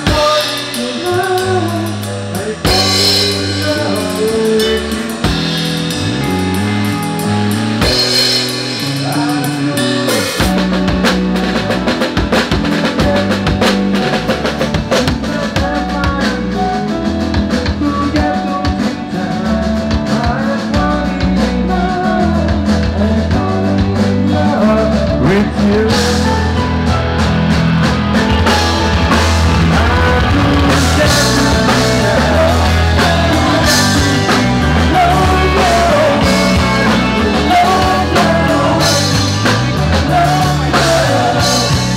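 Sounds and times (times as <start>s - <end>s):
person singing: 0.0s - 27.0s, 28.4s - 41.9s
bass: 0.0s - 41.9s
drum kit: 0.0s - 41.9s
rock band playing live: 0.0s - 41.9s.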